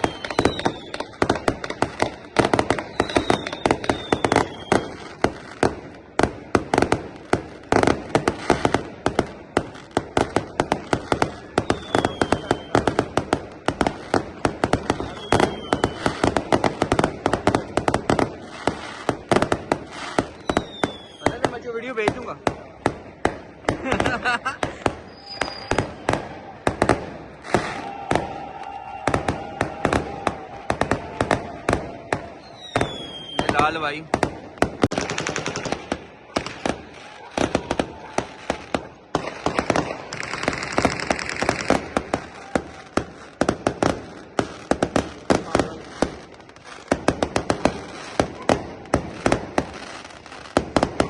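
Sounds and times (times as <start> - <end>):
faint steady whistle: 0.0 - 1.0, 2.9 - 4.8, 11.6 - 12.8, 25.1 - 25.8
fireworks bangs: 0.0 - 51.0.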